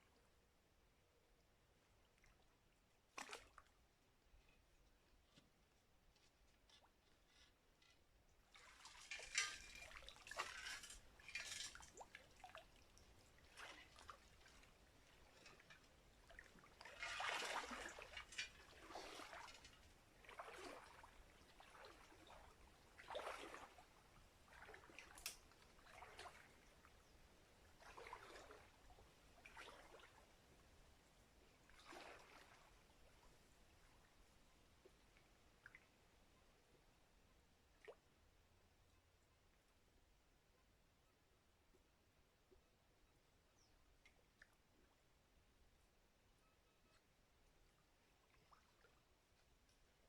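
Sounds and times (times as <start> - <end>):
water splashing and trickling: 1.7 - 5.4, 6.1 - 36.9, 47.0 - 50.0.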